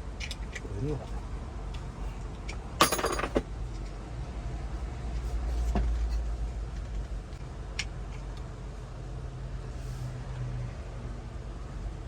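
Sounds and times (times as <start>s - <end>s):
parts clattering: 2.8s - 3.5s.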